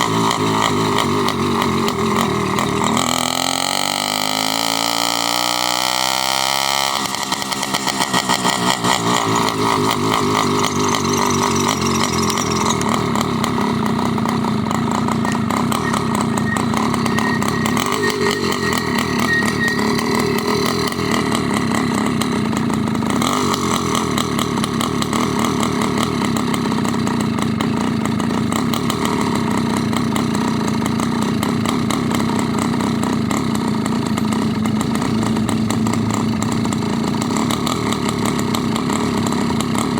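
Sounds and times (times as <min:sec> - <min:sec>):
small motorbike engine running: 0:00.0 - 0:39.9
faint high squeak: 0:14.6 - 0:21.6.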